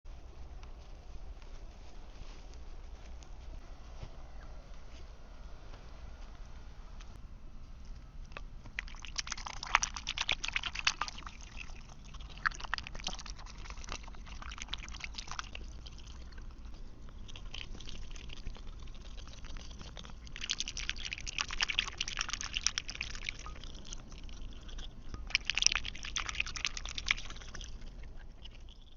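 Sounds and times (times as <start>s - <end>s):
duck bill dabbling wet clicks: 8.3s - 28.9s.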